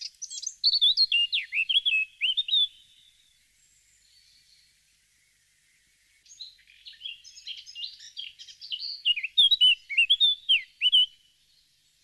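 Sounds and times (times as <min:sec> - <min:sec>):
bird chirping and whistling: 0:00.2 - 0:02.7, 0:07.0 - 0:11.1.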